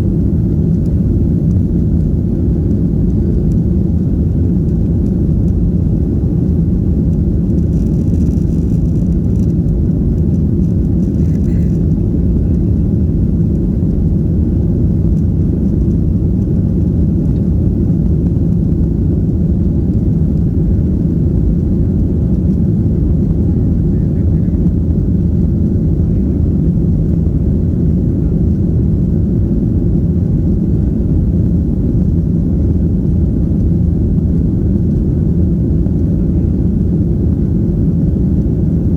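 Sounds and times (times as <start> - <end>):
jet engines rumbling in cabin: 0.0 - 38.9.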